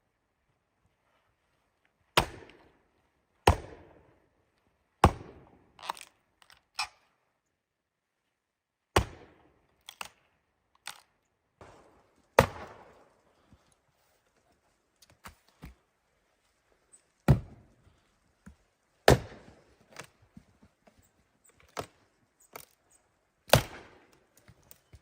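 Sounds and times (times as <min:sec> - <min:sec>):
axe chopping wood: 0:02.2 - 0:02.6, 0:03.4 - 0:03.9, 0:05.0 - 0:05.5, 0:08.9 - 0:10.2, 0:12.4 - 0:12.9, 0:17.2 - 0:17.6, 0:19.0 - 0:20.1, 0:23.5 - 0:24.0.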